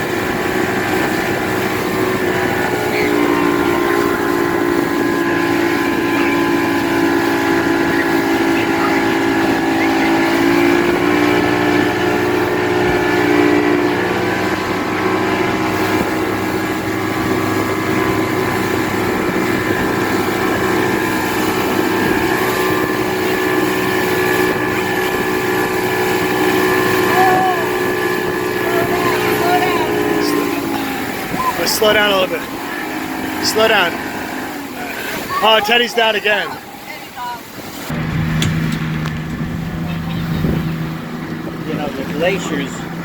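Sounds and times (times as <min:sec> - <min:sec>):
motorboat engine humming: 0:00.0 - 0:43.0.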